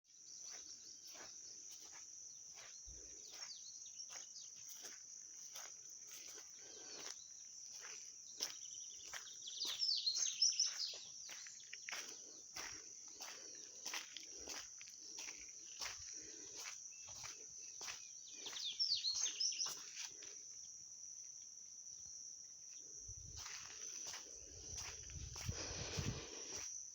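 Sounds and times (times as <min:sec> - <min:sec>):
birds chirping: 0:00.1 - 0:05.6, 0:06.2 - 0:14.5, 0:15.2 - 0:19.9
insects trilling: 0:00.1 - 0:26.9.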